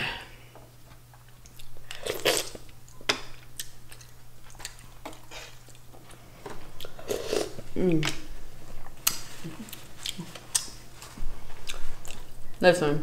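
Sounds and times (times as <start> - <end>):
chewing mussels: 1.0 - 6.2, 6.8 - 12.6.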